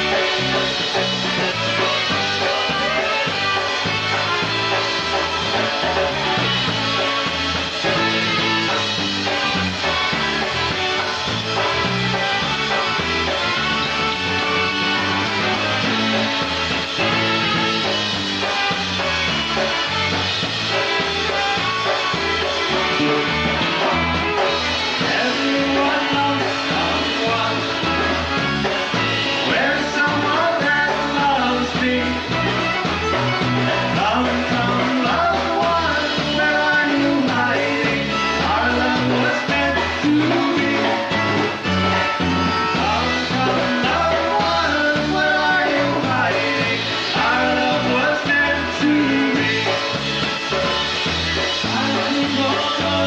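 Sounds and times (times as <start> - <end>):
bass beat: 0.0 - 53.0
polka band playing: 0.0 - 53.0
person singing: 22.9 - 28.4, 29.3 - 41.6, 42.2 - 50.4, 51.4 - 53.0.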